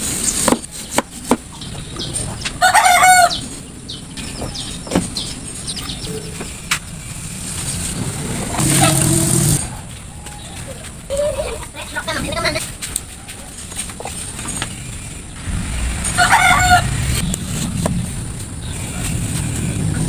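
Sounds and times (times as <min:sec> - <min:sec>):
chicken calling: 0:01.5 - 0:06.4.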